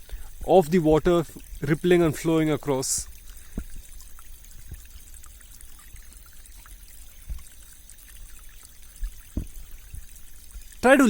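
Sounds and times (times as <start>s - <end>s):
stream rippling and trickling: 0.0s - 11.0s
low thump: 9.0s - 10.1s.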